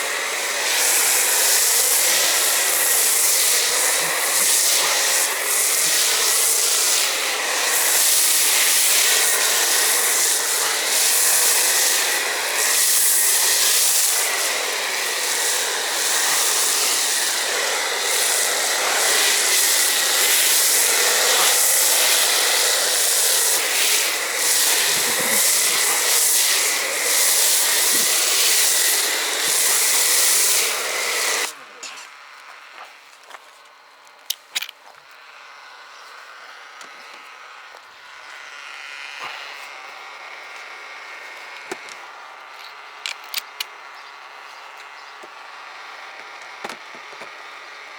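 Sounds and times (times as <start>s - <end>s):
pressure washer spray hissing: 0.0s - 31.6s.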